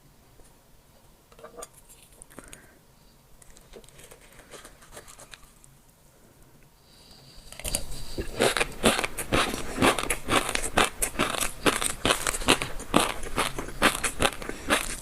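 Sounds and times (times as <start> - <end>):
chewing crunchy food: 7.6 - 15.0.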